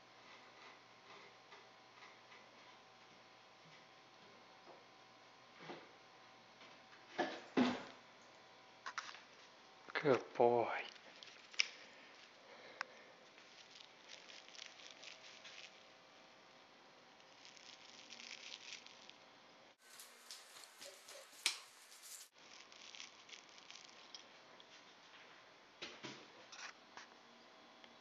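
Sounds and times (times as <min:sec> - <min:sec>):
cat paws pattering on hard floor: 0:19.8 - 0:22.3.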